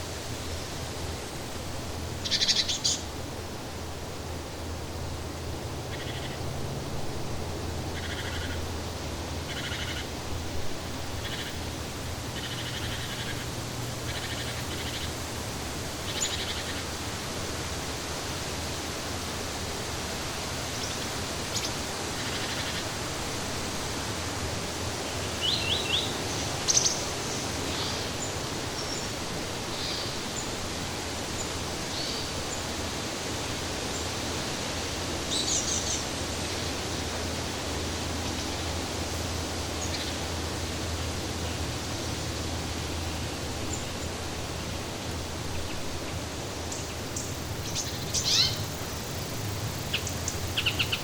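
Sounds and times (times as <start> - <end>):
flowing water rushing: 0.0 - 51.0
small birds chirping: 2.2 - 3.1, 12.3 - 15.2, 46.6 - 51.0.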